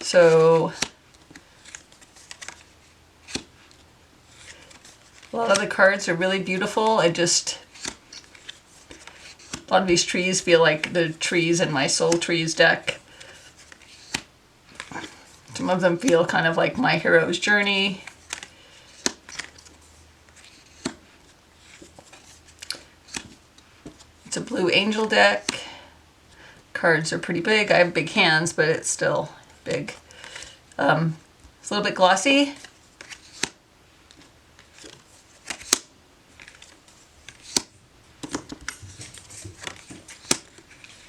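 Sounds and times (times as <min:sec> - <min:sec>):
cards clicking and snapping: 0:00.8 - 0:03.8, 0:07.7 - 0:09.7, 0:13.1 - 0:15.2, 0:18.0 - 0:21.0, 0:21.7 - 0:24.0, 0:32.6 - 0:41.0
cards snapping down: 0:34.7 - 0:36.7, 0:37.3 - 0:40.9.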